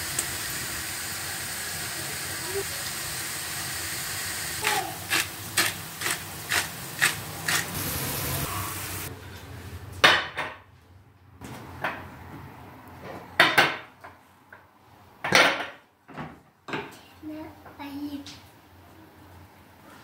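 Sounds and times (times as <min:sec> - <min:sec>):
dishes knocking and clattering: 0:13.4 - 0:14.1, 0:15.2 - 0:17.0.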